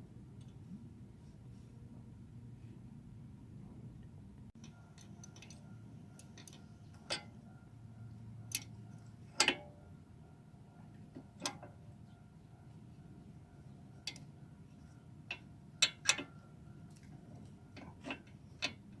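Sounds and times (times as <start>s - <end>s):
metallic clicks of tools and parts: 4.6s - 7.4s, 8.5s - 9.7s, 11.2s - 11.8s, 14.0s - 14.3s, 15.2s - 19.0s.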